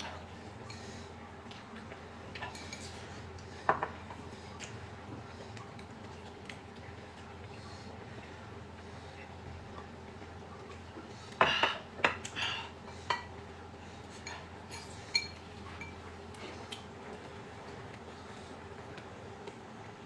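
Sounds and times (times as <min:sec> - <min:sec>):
tableware clinking: 0:14.2 - 0:16.0.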